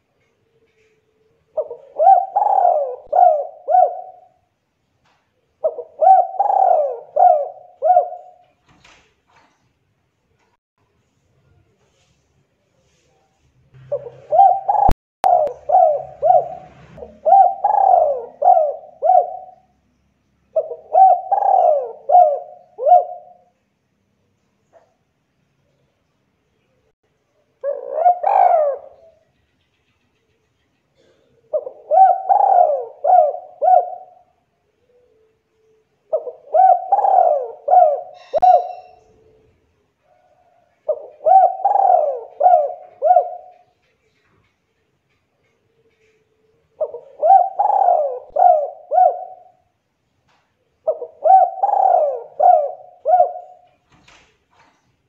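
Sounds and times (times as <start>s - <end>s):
dove cooing: 0.0s - 4.5s, 5.6s - 8.6s, 13.8s - 19.7s, 20.5s - 23.6s, 27.6s - 29.3s, 31.0s - 43.8s, 45.4s - 49.7s, 50.8s - 53.8s.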